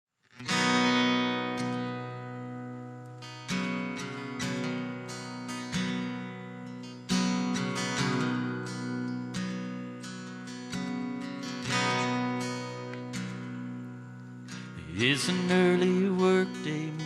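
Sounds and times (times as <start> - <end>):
acoustic guitar strummed chords: 0.3 - 17.0.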